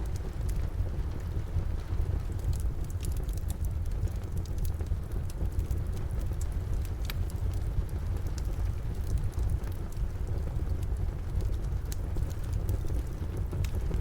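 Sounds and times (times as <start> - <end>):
steady rain: 0.0 - 14.0
wood fire crackling: 0.0 - 14.0.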